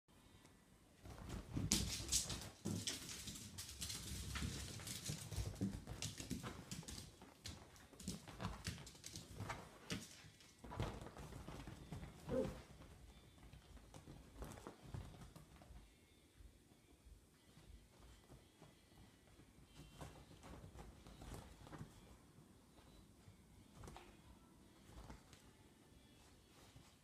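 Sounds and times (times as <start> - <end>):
dogs play-fighting: 1.0 - 12.9
dogs scuffling and pattering paws: 1.0 - 16.3, 17.0 - 27.0.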